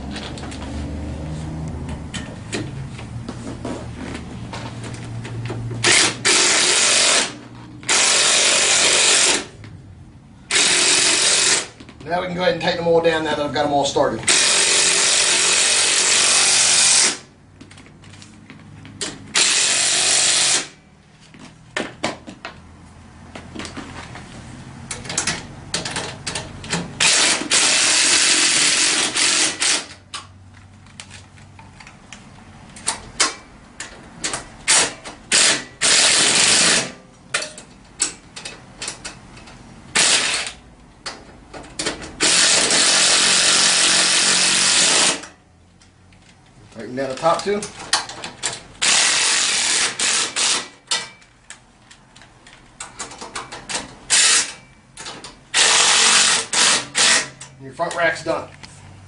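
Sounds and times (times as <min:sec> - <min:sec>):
power tool driving bolts: 0:05.7 - 0:09.6, 0:10.5 - 0:11.9, 0:14.2 - 0:17.3, 0:19.0 - 0:20.8, 0:24.9 - 0:30.3, 0:32.8 - 0:45.4, 0:47.1 - 0:51.3, 0:52.8 - 0:57.6
clicks and knocks of hardware: 0:37.3 - 0:39.6.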